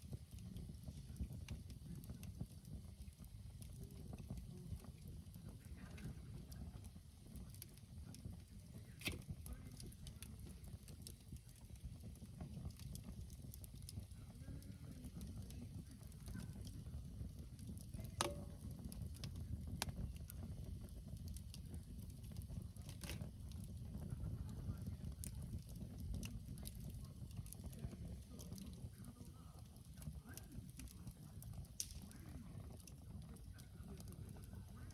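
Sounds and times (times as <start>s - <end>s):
campfire crackling and popping: 0.0s - 34.9s.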